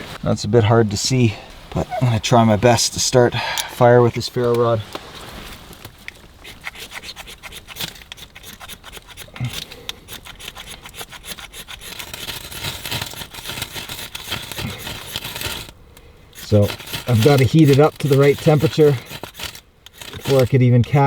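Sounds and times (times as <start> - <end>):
ferro rod rasping scrapes: 1.7 - 21.0.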